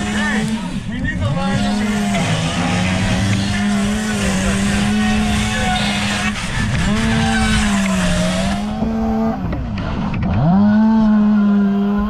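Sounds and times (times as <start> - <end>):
small high-revving engine: 0.0 - 12.0.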